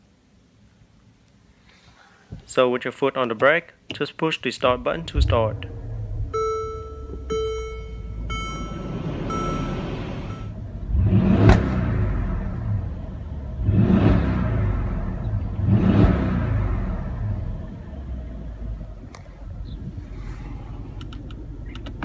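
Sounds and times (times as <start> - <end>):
car engine idling and revving: 4.6 - 22.0
chime repeating: 6.4 - 10.5.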